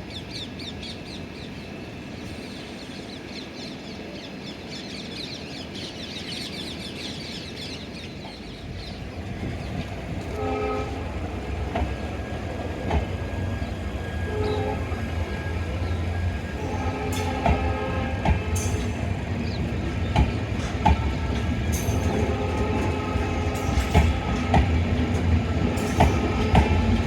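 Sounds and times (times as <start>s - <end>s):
birds chirping: 0.0s - 27.0s
train rumble: 0.0s - 27.0s
locomotive horn blasts: 10.2s - 12.0s, 14.0s - 15.8s, 16.6s - 19.2s, 21.1s - 24.5s.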